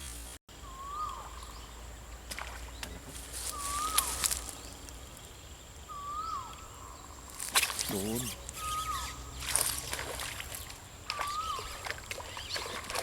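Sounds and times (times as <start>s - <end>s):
bird whistled call: 0.6s - 1.5s, 3.5s - 4.5s, 5.9s - 7.1s, 8.1s - 9.3s, 11.1s - 12.8s.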